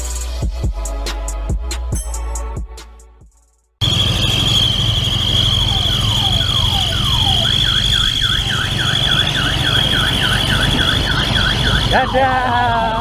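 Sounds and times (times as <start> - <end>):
electronic siren: 3.8 - 13.0
high whistle-like tone: 3.8 - 13.0
vehicle engine running: 3.8 - 13.0.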